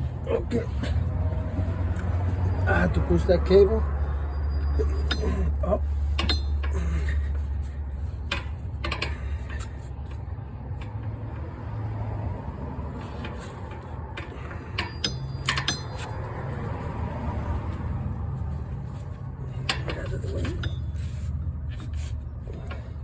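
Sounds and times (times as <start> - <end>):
tools clicking and knocking: 4.8 - 11.2, 13.0 - 16.3, 19.5 - 23.0.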